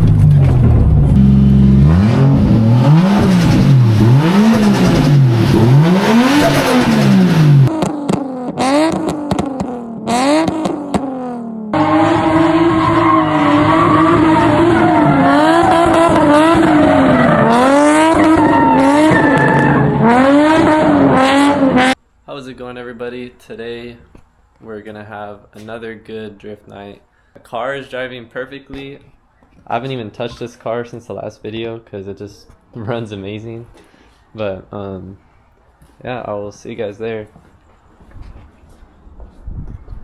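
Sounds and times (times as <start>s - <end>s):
car engine revving: 0.0s - 22.0s
tyres squealing: 11.8s - 20.7s.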